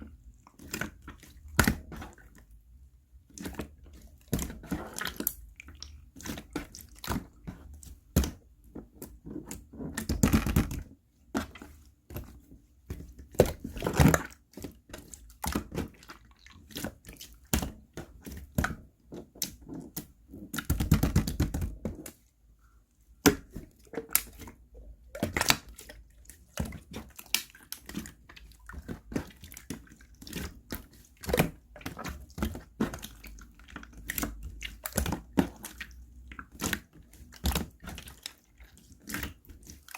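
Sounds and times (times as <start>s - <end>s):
slime squished by hand: 23.2s - 39.9s.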